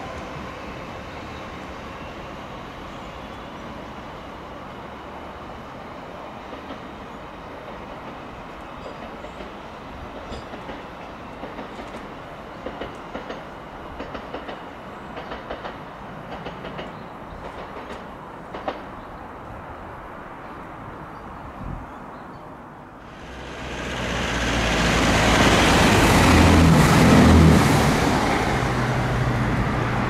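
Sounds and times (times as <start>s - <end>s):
wheels clicking over rail joints: 10.2s - 19.0s
electric train rumble: 23.0s - 30.0s.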